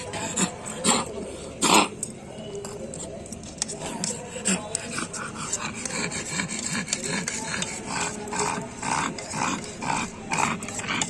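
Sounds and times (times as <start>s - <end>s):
spoon scraping and clicking: 1.8s - 11.0s
dog panting: 3.8s - 11.0s.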